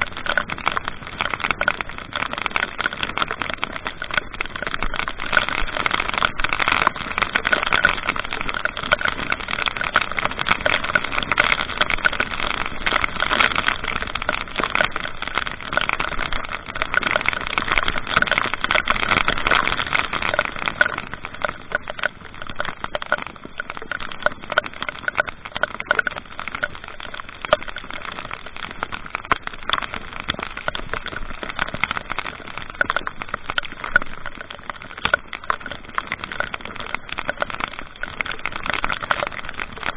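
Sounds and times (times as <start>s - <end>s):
small scattered ticks: 0.0s - 39.9s.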